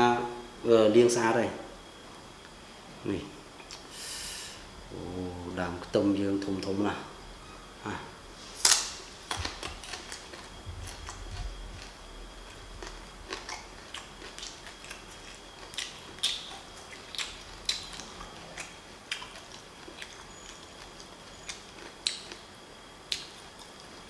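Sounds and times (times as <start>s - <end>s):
person chewing raw onion: 8.6s - 24.0s.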